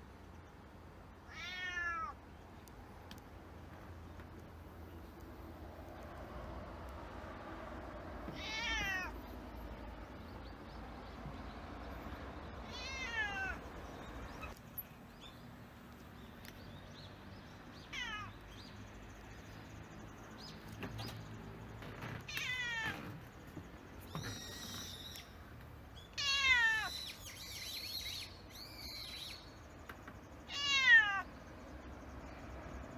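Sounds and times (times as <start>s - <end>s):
cat meowing: 1.3s - 2.2s, 8.3s - 9.2s, 12.6s - 13.7s, 17.9s - 18.4s, 22.3s - 23.2s, 26.2s - 27.0s, 30.5s - 31.3s.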